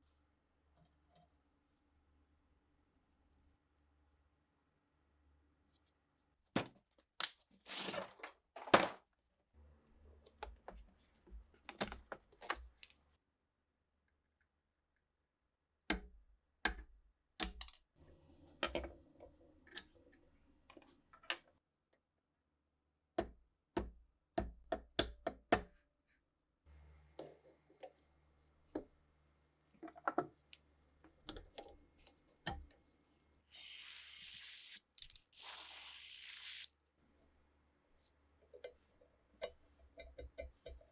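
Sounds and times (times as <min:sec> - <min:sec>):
rifle parts clicking: 0:34.8 - 0:35.3.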